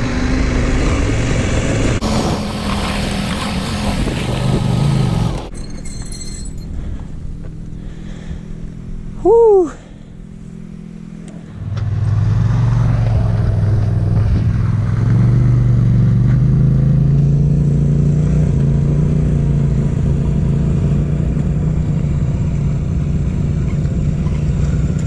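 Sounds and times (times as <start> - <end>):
motorcycle engine pulling under load: 0.4 - 8.0.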